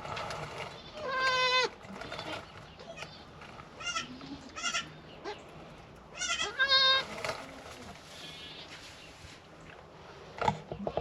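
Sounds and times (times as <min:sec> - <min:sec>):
goats bleating: 0:00.8 - 0:02.4, 0:03.8 - 0:05.4, 0:06.2 - 0:07.1.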